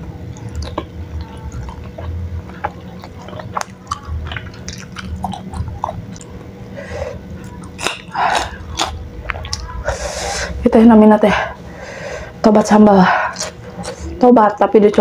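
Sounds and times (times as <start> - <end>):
wet chewing clicks and smacks: 0.2 - 6.5.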